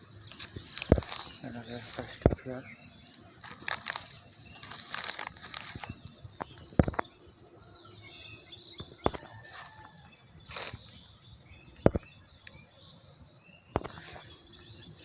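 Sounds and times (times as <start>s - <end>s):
faint bird chirps: 0.0s - 15.0s
high insect-like whine: 0.0s - 15.0s
litter rustling: 3.2s - 7.0s.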